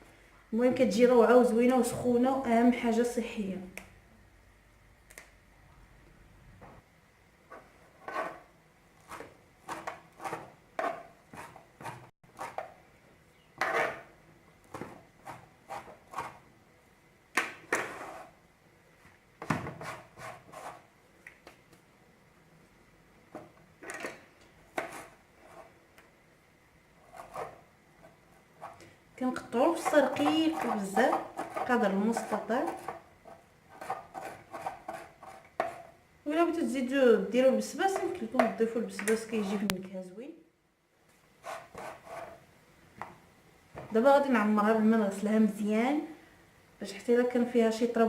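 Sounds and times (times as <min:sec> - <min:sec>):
knife cutting on wooden board: 0:09.0 - 0:12.7.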